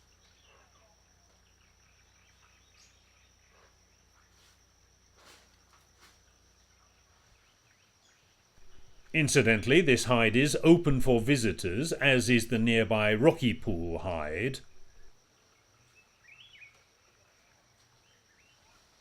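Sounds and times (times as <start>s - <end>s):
faint bird chirps: 0.0s - 4.4s, 15.9s - 18.9s
high insect drone: 0.0s - 18.6s.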